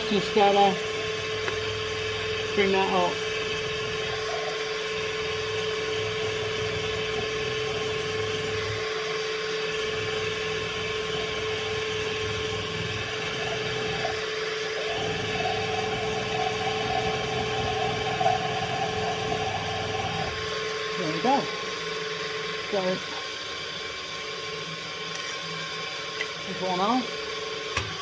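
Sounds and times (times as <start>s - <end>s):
milling machine hum and whine: 0.0s - 28.0s.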